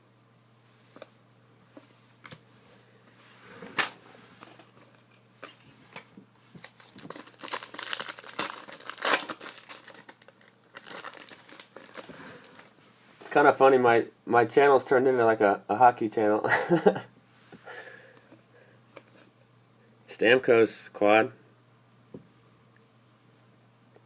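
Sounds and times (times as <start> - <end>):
cards rustling: 4.4 - 12.7
card pack wrapper crinkling: 6.6 - 12.7.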